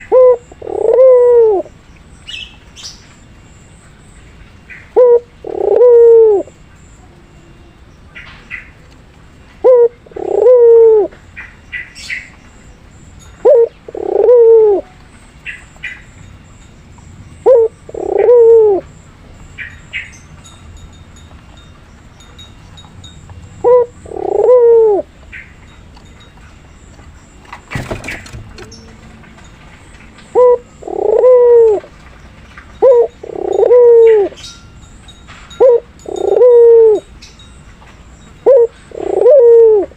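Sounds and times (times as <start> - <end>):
dove cooing: 0.0 - 1.7, 4.9 - 6.6, 9.6 - 11.2, 13.4 - 15.0, 17.4 - 19.0, 23.4 - 25.2, 30.2 - 32.0, 32.8 - 34.5, 35.6 - 37.1, 38.4 - 39.9.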